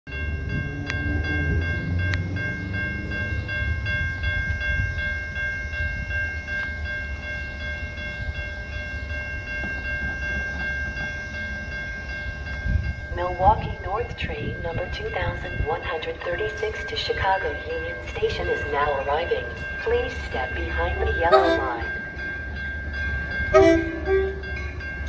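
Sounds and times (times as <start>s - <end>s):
train rumble: 0.1s - 25.0s
high-pitched tones: 14.2s - 25.0s.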